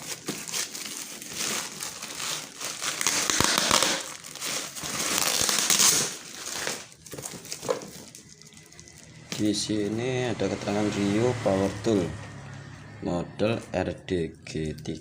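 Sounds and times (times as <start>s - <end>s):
packaging crinkling and rustling: 0.0s - 9.9s.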